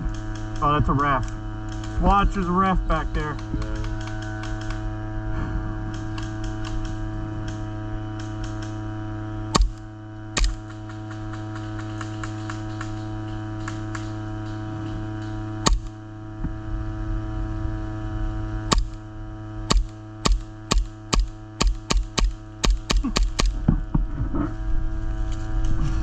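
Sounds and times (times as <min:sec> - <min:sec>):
electrical hum: 0:00.0 - 0:26.0
airsoft gun shots: 0:09.5 - 0:13.0, 0:15.6 - 0:16.0, 0:18.7 - 0:19.0, 0:19.7 - 0:23.6.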